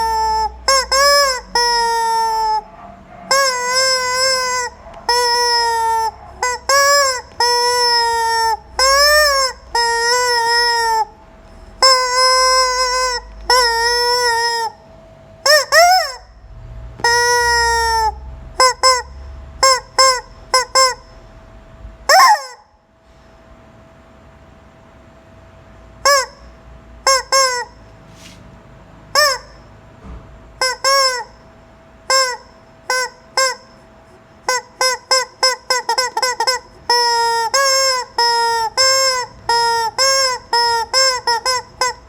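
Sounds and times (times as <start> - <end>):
rubber chicken toy squawking: 0.0 - 14.8, 15.4 - 16.4, 17.0 - 21.1, 22.1 - 22.7, 26.0 - 27.8, 29.2 - 29.7, 30.6 - 31.4, 32.0 - 33.8, 34.4 - 42.0.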